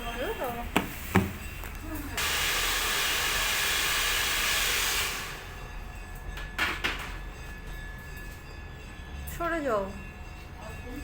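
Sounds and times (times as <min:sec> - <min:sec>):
hair dryer blowing: 0:02.2 - 0:05.6.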